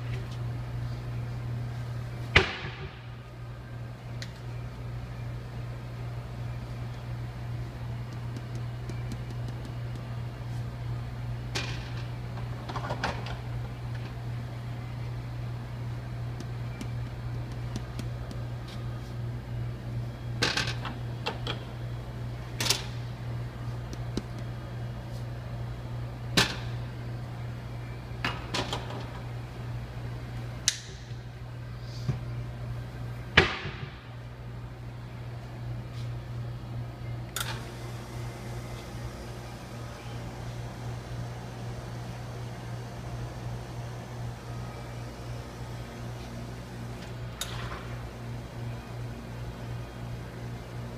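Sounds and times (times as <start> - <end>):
steady low hum: 0.0 - 50.9
espresso machine humming: 14.3 - 20.2, 37.5 - 48.9.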